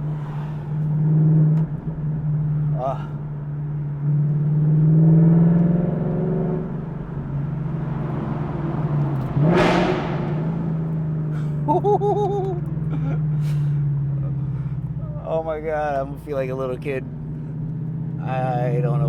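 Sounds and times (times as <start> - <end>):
car engine droning while cruising: 0.0 - 19.0
short rushing burst: 7.9 - 11.4.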